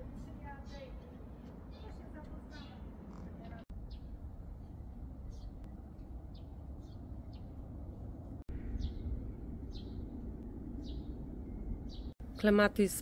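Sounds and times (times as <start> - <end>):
steady low rumble: 2.9 - 12.8.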